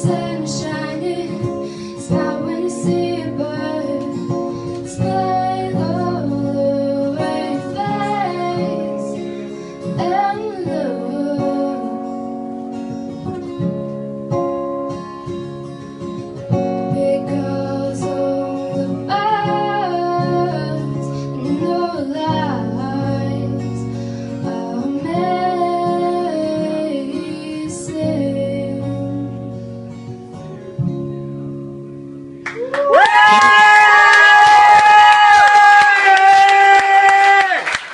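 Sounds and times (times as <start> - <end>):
woman singing: 0.0 - 12.6, 15.3 - 29.6
acoustic guitar: 0.0 - 37.9.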